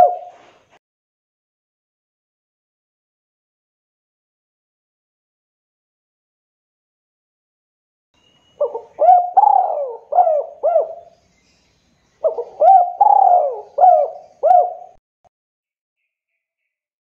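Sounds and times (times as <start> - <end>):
dove cooing: 0.0 - 0.5, 8.6 - 11.1, 12.2 - 15.0.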